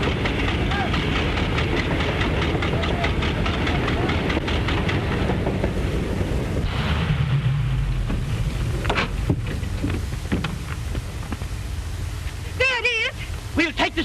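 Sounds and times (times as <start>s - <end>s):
rapid mechanical clatter: 0.0s - 5.7s
steady rumble and hiss: 0.0s - 14.0s.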